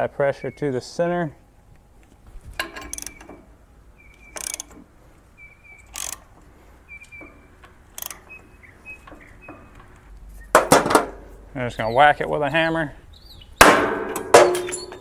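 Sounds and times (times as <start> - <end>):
wrench clicking: 2.6 - 3.2, 4.2 - 4.8, 5.8 - 6.3, 7.9 - 8.2
metal squeaking under load: 2.6 - 10.7, 14.3 - 15.0.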